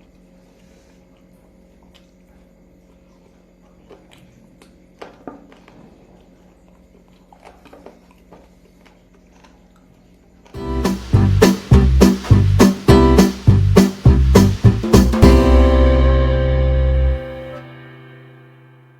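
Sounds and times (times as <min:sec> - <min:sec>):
faint steady hum: 0:00.0 - 0:18.9
person chewing food: 0:00.1 - 0:10.6
soft mouth clicks and smacks: 0:01.0 - 0:10.6.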